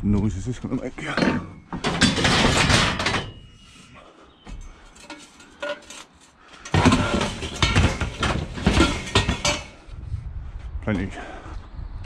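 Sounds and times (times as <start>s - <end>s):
scrap metal clattering: 1.0s - 4.1s, 4.7s - 9.9s.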